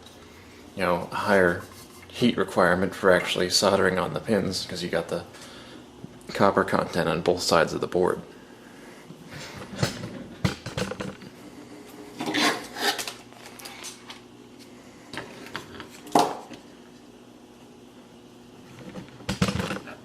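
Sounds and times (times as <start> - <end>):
faint transformer hum: 0.0 - 20.0.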